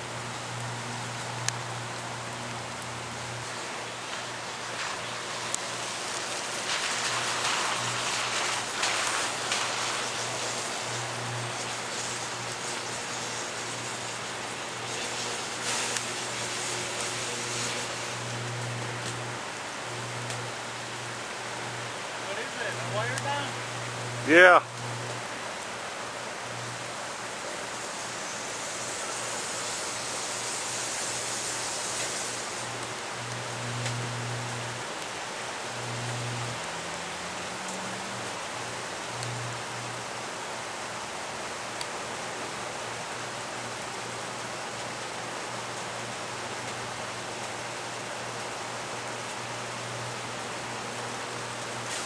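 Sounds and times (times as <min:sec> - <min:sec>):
transformer electrical hum: 0:00.0 - 0:36.8
steady hiss: 0:00.0 - 0:52.0.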